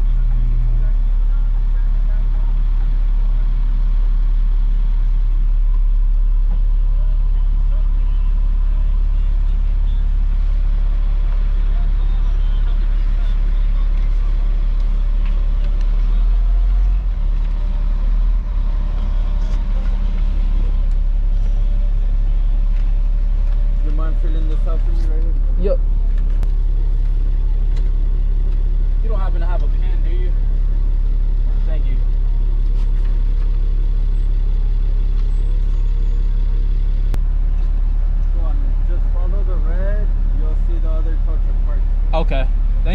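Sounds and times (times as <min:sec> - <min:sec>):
truck engine rumbling: 0:00.0 - 0:42.9.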